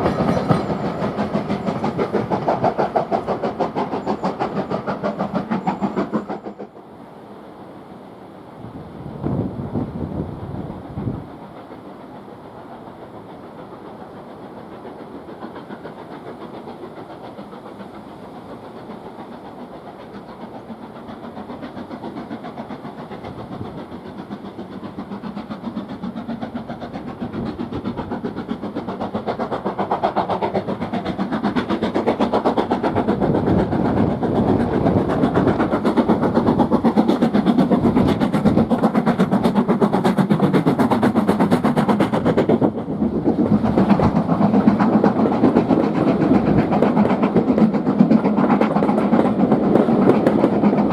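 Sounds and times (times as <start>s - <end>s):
steam train approaching: 0.0s - 50.9s.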